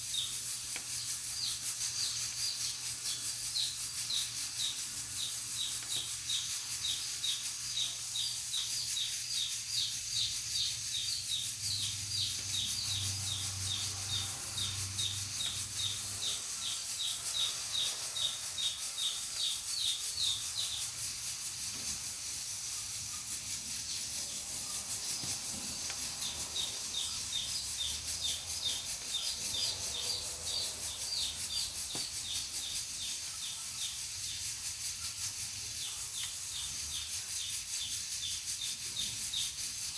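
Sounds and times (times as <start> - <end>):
pressure cooker hissing: 10.5 - 34.6.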